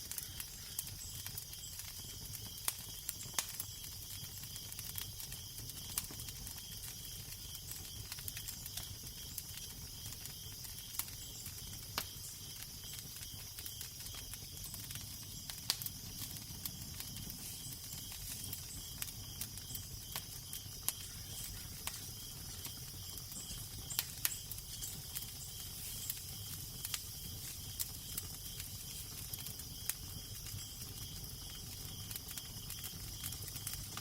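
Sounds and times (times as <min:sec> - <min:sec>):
wood fire crackling: 0:00.0 - 0:34.0
soft hiss: 0:16.7 - 0:29.3.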